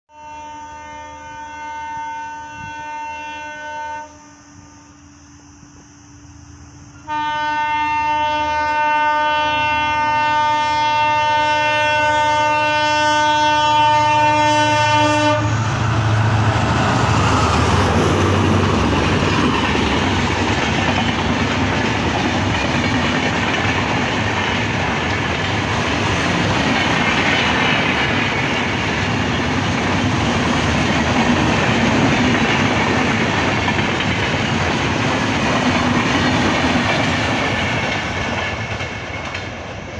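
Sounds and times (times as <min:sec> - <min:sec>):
train horn blast: 0:00.1 - 0:05.0, 0:07.0 - 0:17.5
train wheels clattering on rail: 0:15.6 - 0:39.9.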